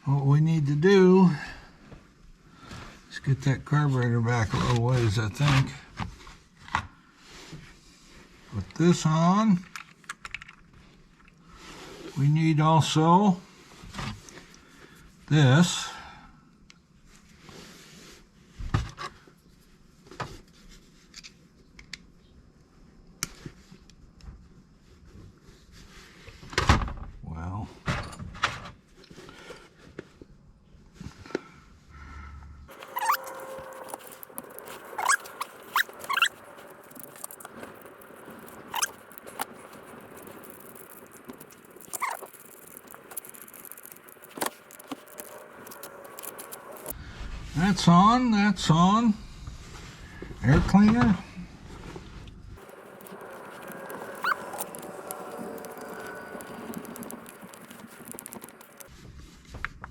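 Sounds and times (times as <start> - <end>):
small parts clicking: 32.7 - 47.0
squeaky scrapes of parts: 32.7 - 47.0, 52.6 - 58.9.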